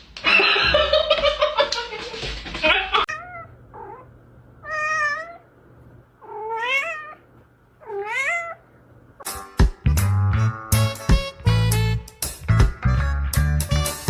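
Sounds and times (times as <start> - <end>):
cat meowing: 3.1 - 5.5, 6.2 - 8.7
music: 9.2 - 14.0.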